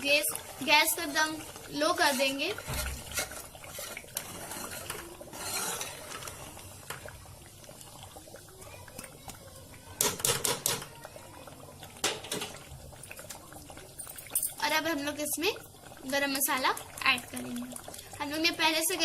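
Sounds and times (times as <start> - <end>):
thick gravy bubbling in a pot: 0.0 - 19.0
metal spoon scraping a pot: 1.8 - 6.6.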